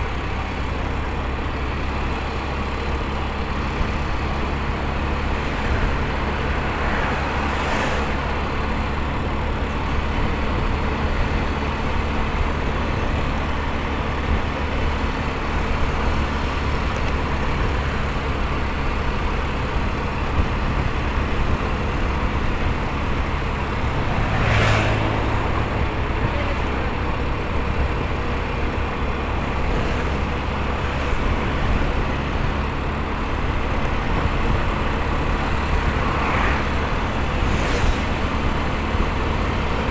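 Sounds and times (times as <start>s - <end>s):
motorcycle engine and road noise: 0.0s - 39.9s
vehicle passing by: 3.8s - 10.7s, 20.3s - 39.9s.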